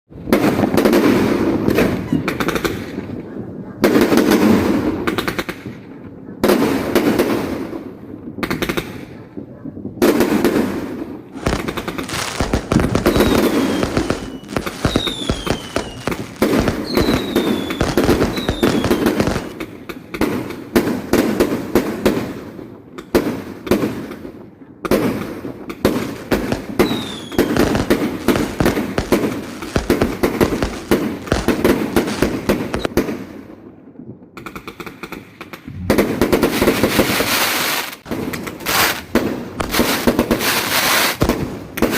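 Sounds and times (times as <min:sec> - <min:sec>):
fireworks bangs and crackles: 0:00.1 - 0:41.9
falling firework whistles: 0:11.4 - 0:19.6, 0:26.5 - 0:33.0.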